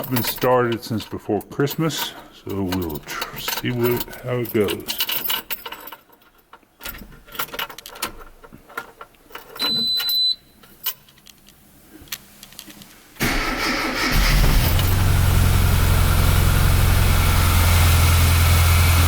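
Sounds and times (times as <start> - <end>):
keys jingling: 0.0 - 11.5
starter cranking engine: 13.2 - 19.0.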